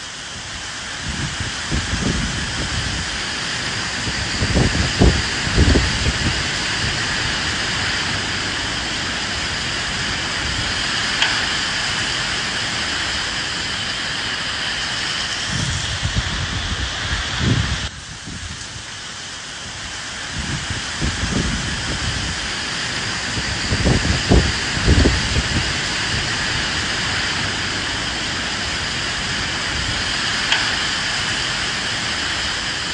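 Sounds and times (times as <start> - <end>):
rain hissing: 0.0 - 32.9
wind gusts rumbling: 0.0 - 32.9.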